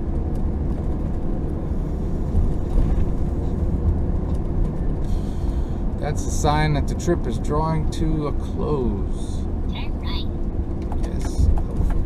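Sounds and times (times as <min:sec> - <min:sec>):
road and engine rumble in cabin: 0:00.0 - 0:12.0.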